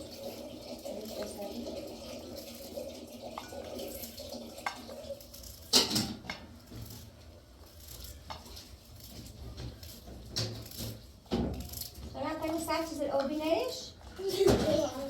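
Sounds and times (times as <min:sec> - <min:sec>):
water splashing and trickling: 0:00.0 - 0:13.8.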